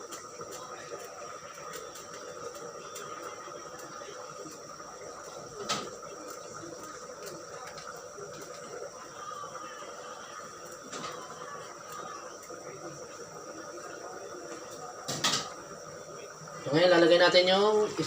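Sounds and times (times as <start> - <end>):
small ticks: 0.0 - 8.8
pot simmering with faint hiss: 0.0 - 18.0.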